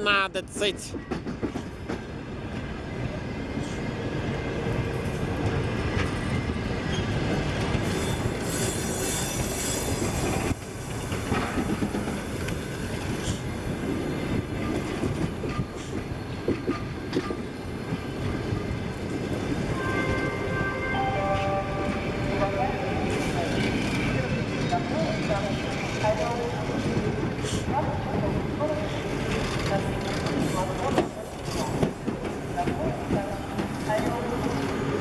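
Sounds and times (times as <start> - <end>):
diesel train rolling in: 1.0 - 35.0.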